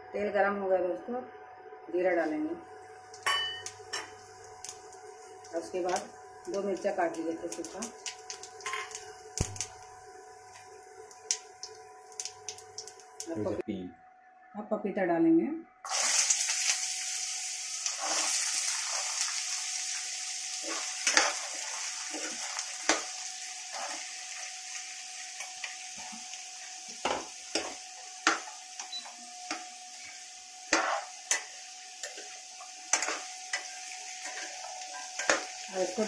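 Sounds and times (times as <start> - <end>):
papaya sizzling in hot oil: 2.8 - 13.6, 15.8 - 36.0
steel spoon clinking against pan: 3.2 - 4.1.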